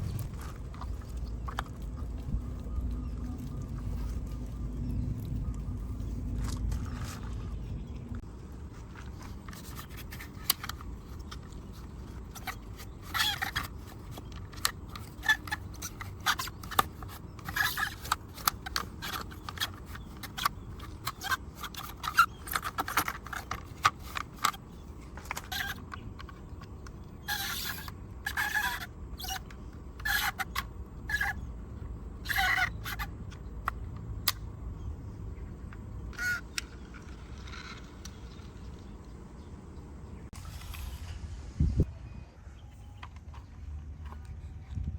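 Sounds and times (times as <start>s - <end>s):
clicks and scrapes cleaning model car: 9.0s - 31.5s, 32.2s - 34.4s.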